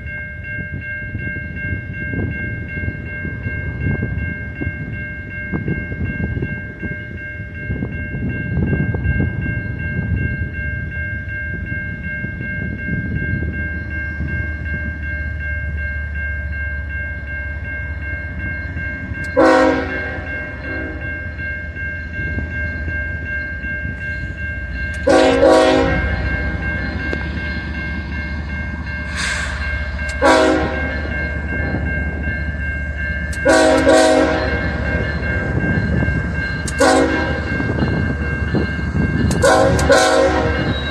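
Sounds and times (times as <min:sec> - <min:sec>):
high ringing tone: 0:00.0 - 0:40.9
train rumbling: 0:00.0 - 0:40.9
locomotive air horn blasts: 0:19.4 - 0:21.0, 0:25.0 - 0:26.3, 0:30.2 - 0:30.9, 0:33.4 - 0:34.6, 0:36.8 - 0:37.5, 0:39.4 - 0:40.7.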